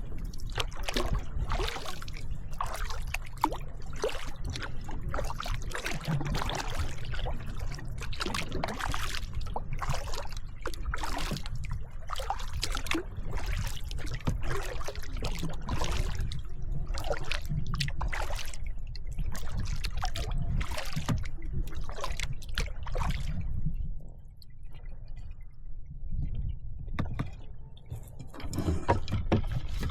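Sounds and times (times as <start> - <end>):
steady low rumble: 0.0 - 5.8
paddle strokes splashing in water: 0.0 - 23.5, 28.1 - 29.9.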